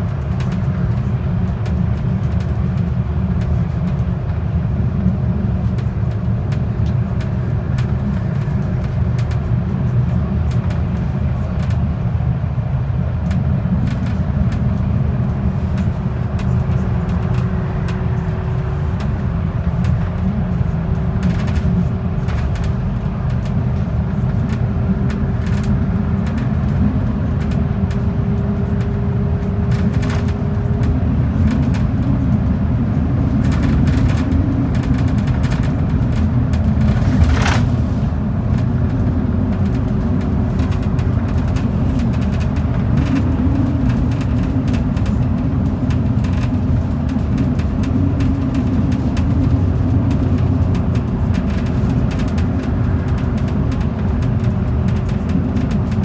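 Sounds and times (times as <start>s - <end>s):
bus engine and road rumble: 0.0s - 56.0s
light rattles: 33.4s - 39.9s.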